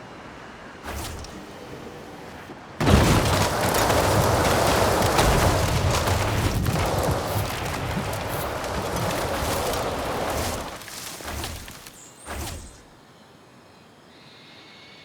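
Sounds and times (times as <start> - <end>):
crackling rush of noise: 0.0 - 13.0
car crash blast: 2.8 - 12.9.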